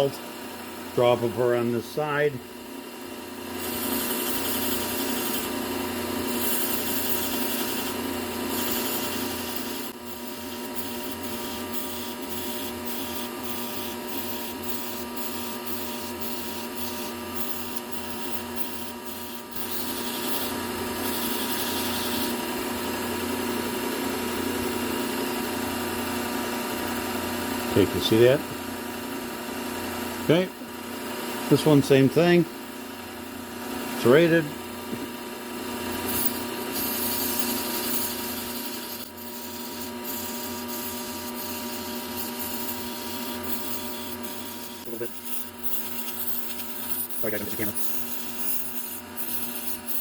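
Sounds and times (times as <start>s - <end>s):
belt sander humming: 0.0s - 50.0s
knife grinding on sander belt: 3.4s - 23.8s, 27.7s - 28.4s, 33.8s - 50.0s
short rasping strokes: 36.0s - 50.0s.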